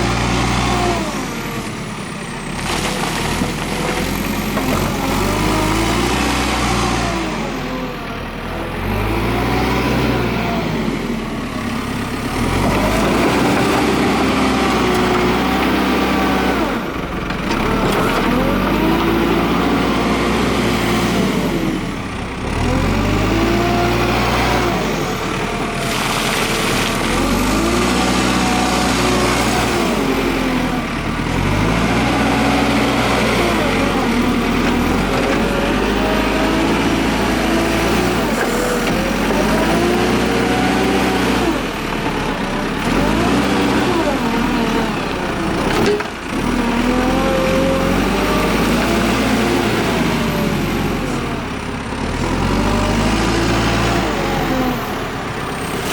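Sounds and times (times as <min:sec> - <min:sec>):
diesel engine revving: 0:00.0 - 0:55.9.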